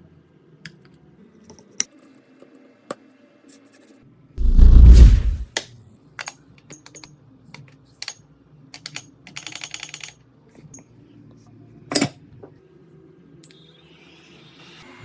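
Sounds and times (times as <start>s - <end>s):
metal tools clicking and tapping: 8.0s - 8.2s, 8.8s - 10.2s.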